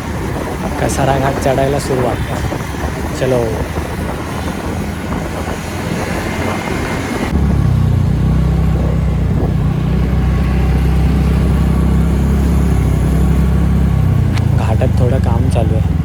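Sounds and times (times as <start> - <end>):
road and wind noise: 0.0 - 16.0
scooter engine running: 0.0 - 16.0.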